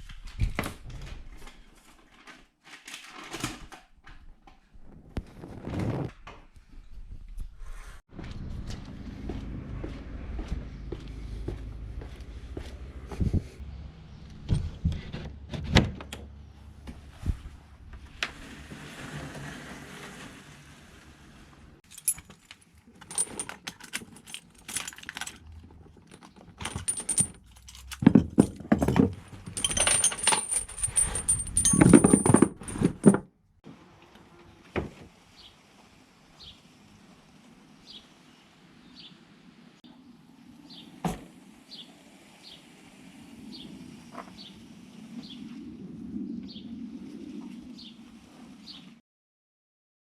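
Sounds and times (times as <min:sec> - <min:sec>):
metal jangling and clinking: 0:21.8 - 0:33.2.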